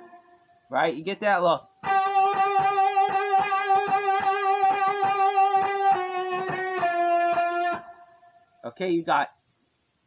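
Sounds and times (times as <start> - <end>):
electric guitar bent note vibrato: 1.8 - 8.2.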